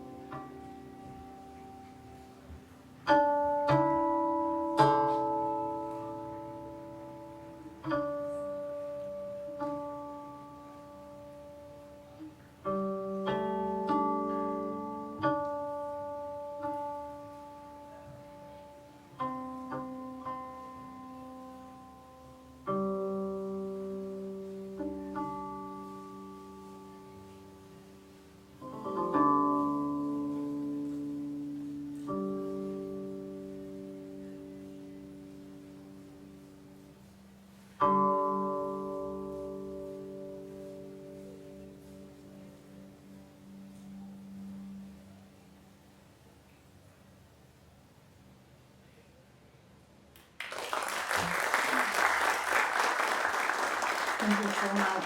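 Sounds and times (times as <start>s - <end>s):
plucked zither notes: 0.0s - 22.0s, 22.6s - 36.9s, 37.5s - 44.9s.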